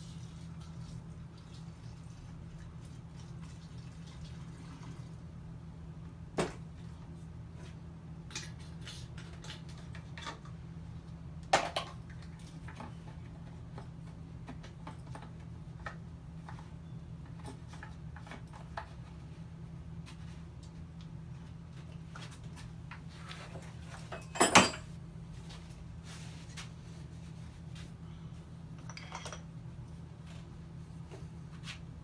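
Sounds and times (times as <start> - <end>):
steady low hum: 12.2 - 32.0.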